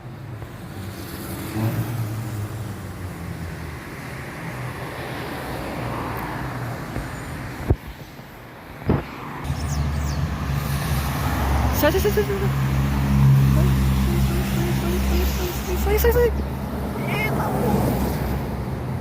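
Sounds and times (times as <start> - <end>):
car passing road noise: 0.4 - 19.0
car engine humming: 9.5 - 18.0.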